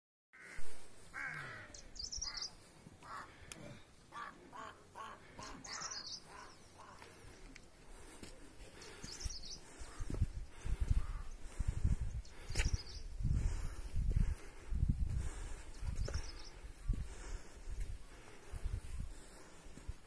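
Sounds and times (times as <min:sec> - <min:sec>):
high warbling birdsong: 0:00.4 - 0:03.4, 0:04.1 - 0:13.7, 0:15.2 - 0:17.5
harsh crow-like caws: 0:00.4 - 0:07.2
footsteps on stone steps: 0:06.8 - 0:11.7, 0:12.3 - 0:12.9, 0:14.1 - 0:20.0.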